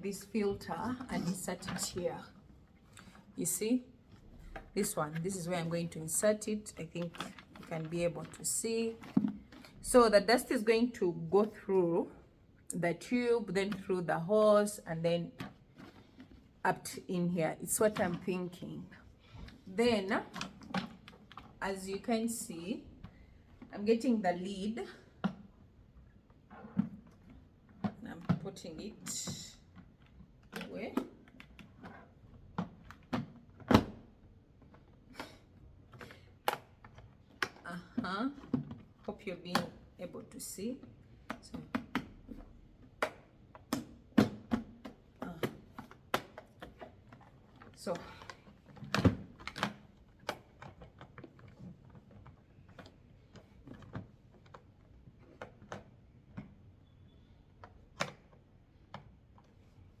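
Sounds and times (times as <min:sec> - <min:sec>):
plastic parts clicking and knocking: 0:40.8 - 0:56.7.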